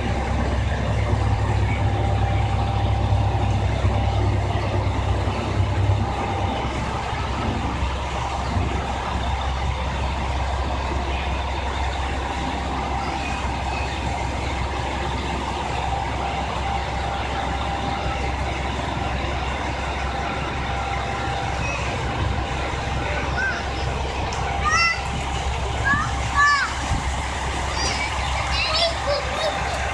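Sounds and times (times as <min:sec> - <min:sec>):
railcar diesel engine idling: 0:00.0 - 0:29.9
thin steady whine: 0:00.0 - 0:29.9.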